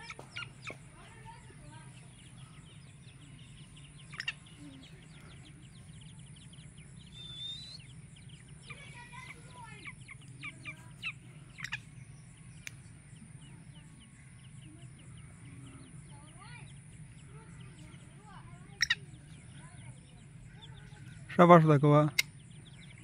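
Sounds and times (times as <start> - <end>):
birds chirping: 0.0 - 23.0
steady low hum: 0.0 - 23.0
rising bird call: 3.4 - 8.0
sharp clicks: 12.6 - 12.8.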